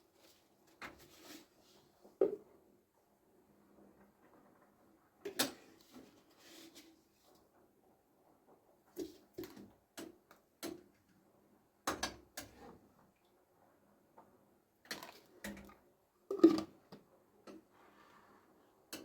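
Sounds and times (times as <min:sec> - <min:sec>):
dishes knocking and clinking: 0:16.3 - 0:16.7.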